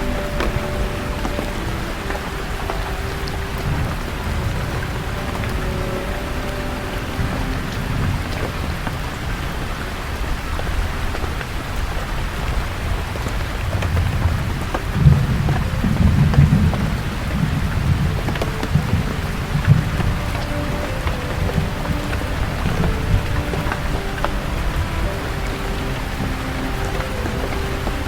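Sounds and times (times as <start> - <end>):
raindrops ticking close by: 0.0 - 28.0
steady rain falling: 0.0 - 28.0
thunder rumbling: 12.3 - 28.0.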